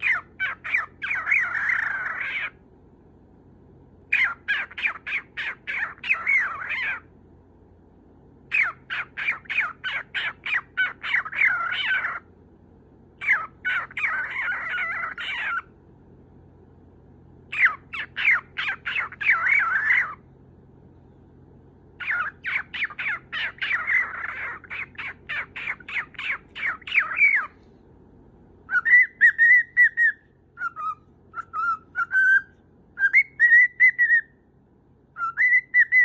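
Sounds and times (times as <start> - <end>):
cockatiel chirping and warbling: 0.0 - 2.6, 4.1 - 7.1, 8.5 - 12.3, 13.2 - 15.7, 17.5 - 20.2, 22.0 - 27.6, 28.7 - 34.4, 35.2 - 36.0.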